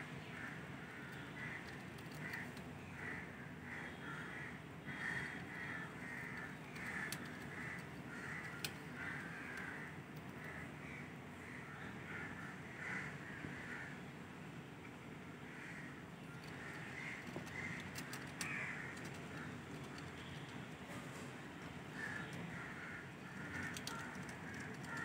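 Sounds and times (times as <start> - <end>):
birds calling harshly: 0.2 - 14.1, 15.4 - 25.0
sharp clicks: 1.1 - 2.7, 6.3 - 10.5, 16.3 - 20.6, 23.2 - 25.0.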